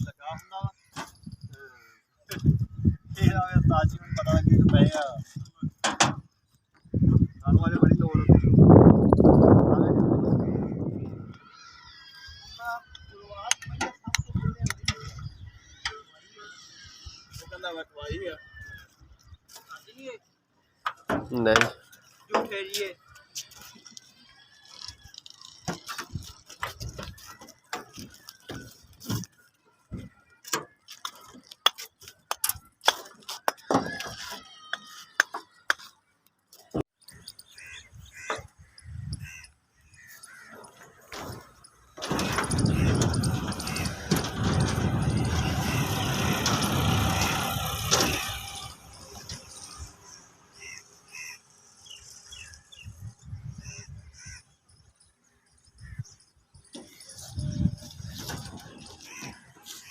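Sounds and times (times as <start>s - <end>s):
small birds chirping: 0.0s - 32.8s, 33.4s - 59.9s
low rumbles: 41.3s - 50.1s.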